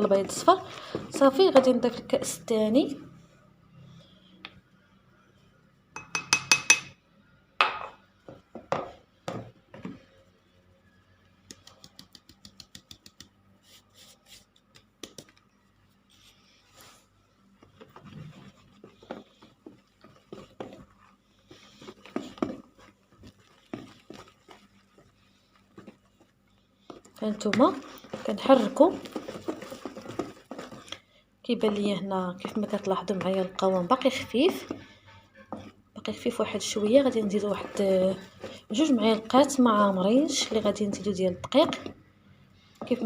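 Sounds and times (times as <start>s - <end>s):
whisk tapping and scraping bowl: 6.0s - 6.9s, 17.6s - 31.0s, 31.6s - 42.0s
cup clinking on bowl: 6.0s - 7.0s.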